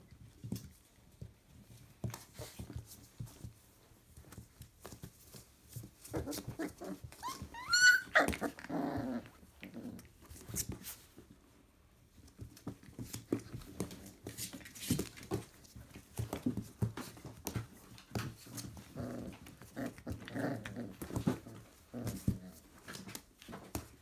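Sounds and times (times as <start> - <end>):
puppies scuffling: 0.0 - 24.0
puppy whining: 6.1 - 10.0
puppy yelping: 6.2 - 8.6.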